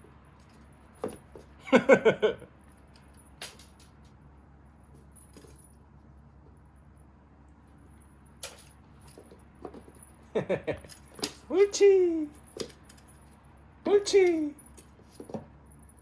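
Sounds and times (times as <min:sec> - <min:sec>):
cat toy jingling and clicking: 0:07.8 - 0:16.0
short voice sound: 0:13.9 - 0:14.6.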